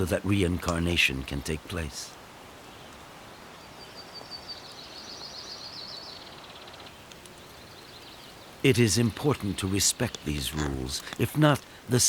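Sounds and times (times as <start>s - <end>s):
songbird trilling: 3.6s - 11.3s.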